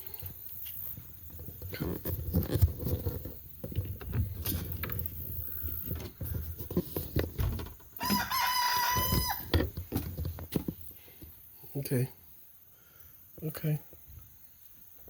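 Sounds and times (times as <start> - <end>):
knocks and rustling: 1.2 - 8.3, 8.9 - 11.3
chicken calling: 8.0 - 9.6.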